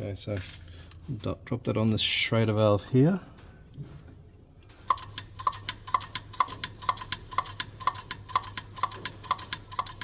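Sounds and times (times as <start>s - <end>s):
hand pump clicking: 4.9s - 10.0s.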